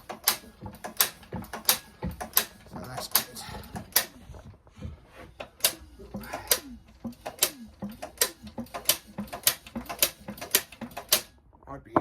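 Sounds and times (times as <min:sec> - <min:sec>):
engine cranked by hand clicking: 0:00.0 - 0:04.4, 0:05.3 - 0:11.3.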